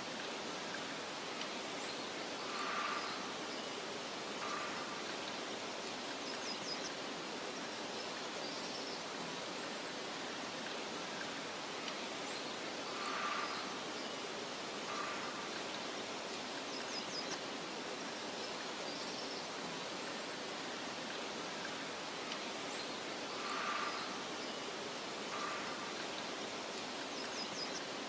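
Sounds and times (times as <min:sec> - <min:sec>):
soft hiss of wind: 0:00.0 - 0:28.0
faint bird calls: 0:01.8 - 0:07.0, 0:11.0 - 0:17.4, 0:21.4 - 0:28.0.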